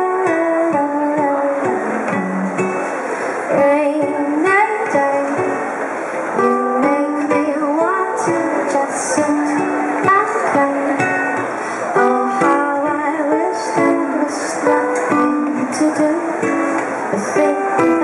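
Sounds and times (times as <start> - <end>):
person singing: 0.0 - 2.5, 6.4 - 11.2, 11.8 - 18.0
ukulele strumming: 0.0 - 18.0.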